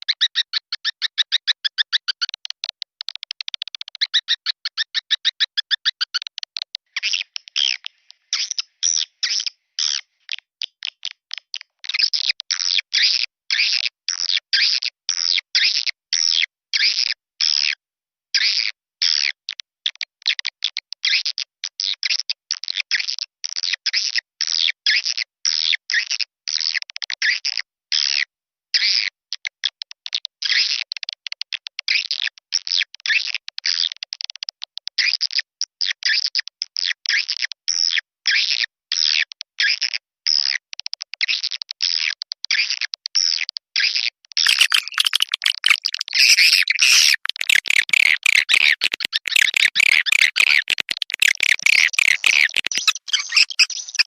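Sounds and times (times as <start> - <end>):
swiftlet chattering chirps: 44.5 - 54.0.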